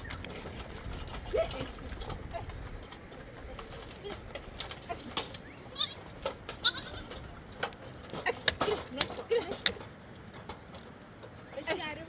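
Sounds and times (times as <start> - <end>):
goats bleating: 5.7 - 6.0, 6.6 - 7.2.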